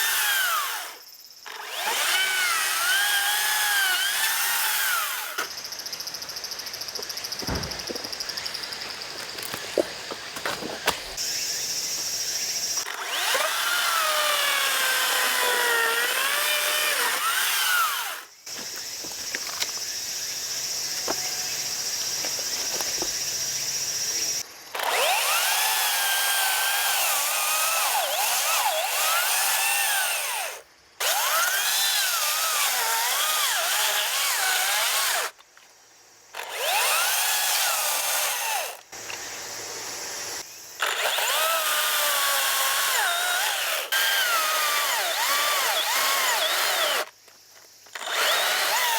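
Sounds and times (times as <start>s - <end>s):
chainsaw cutting wood: 0.0s - 5.5s, 12.8s - 19.4s, 24.8s - 35.4s, 36.4s - 39.1s, 40.8s - 47.2s, 47.9s - 48.9s.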